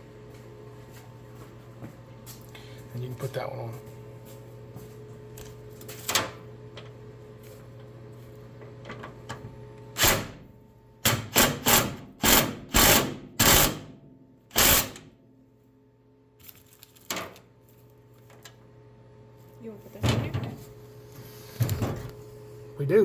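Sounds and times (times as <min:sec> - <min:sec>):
cordless power driver bursts: 0:10.0 - 0:10.4, 0:11.1 - 0:13.9, 0:14.5 - 0:15.0.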